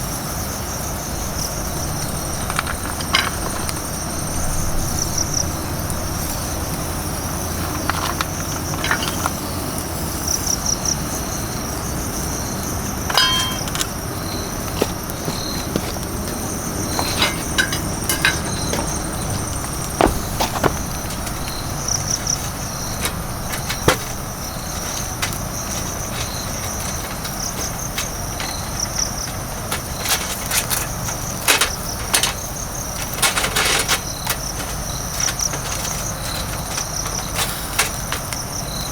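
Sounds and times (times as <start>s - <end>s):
crickets chirping: 0.0s - 38.9s
sharp clicks and knocks: 14.7s - 32.4s.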